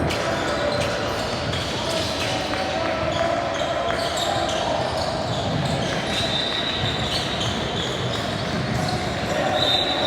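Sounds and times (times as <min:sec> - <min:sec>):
basketball bouncing on court: 0:03.1 - 0:09.2.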